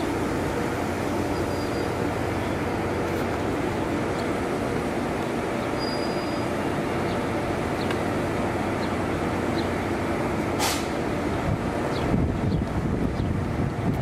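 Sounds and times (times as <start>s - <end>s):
train rumbling past: 0.0s - 14.0s
short sharp hiss: 10.6s - 11.0s.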